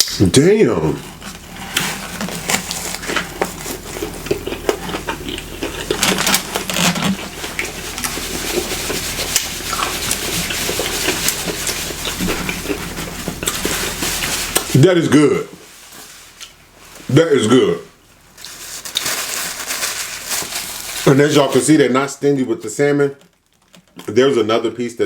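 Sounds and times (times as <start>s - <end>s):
chewing crunchy food: 1.0s - 15.3s, 18.4s - 21.3s, 23.2s - 24.3s.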